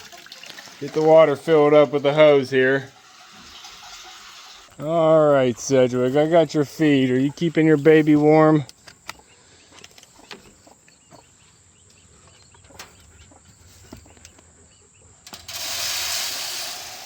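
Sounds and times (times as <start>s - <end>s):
feed pouring into a dish: 15.4s - 17.0s.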